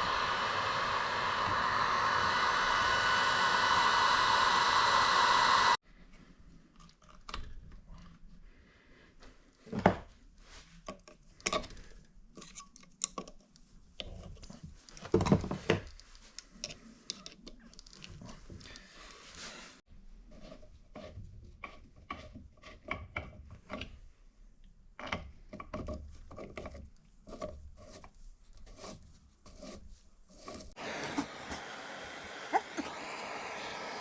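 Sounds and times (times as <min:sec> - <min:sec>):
motor-driven tool whirring: 0:00.0 - 0:05.8, 0:30.8 - 0:34.0.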